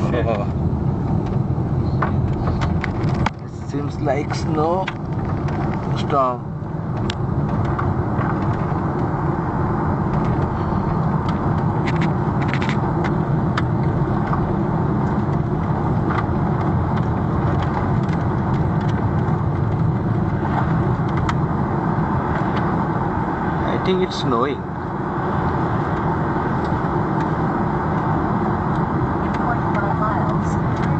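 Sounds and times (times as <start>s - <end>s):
car road and engine noise: 0.0s - 30.9s.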